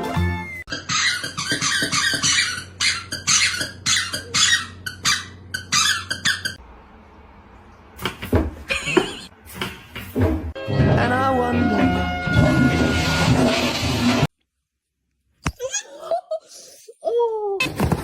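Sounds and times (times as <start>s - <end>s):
high-pitched squeaks: 0.7s - 6.6s.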